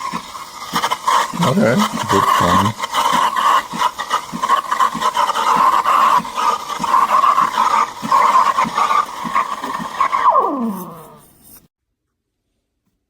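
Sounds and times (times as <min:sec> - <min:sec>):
steam wand frothing milk: 0:00.0 - 0:11.7.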